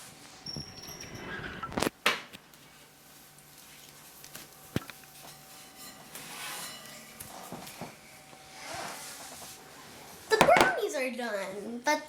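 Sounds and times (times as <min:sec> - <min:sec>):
faint room noise: 0:00.0 - 0:12.0.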